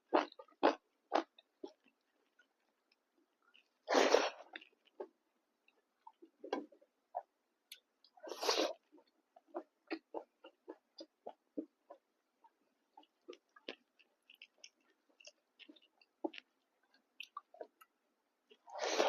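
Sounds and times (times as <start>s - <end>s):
wet chewing: 5.7s - 17.9s.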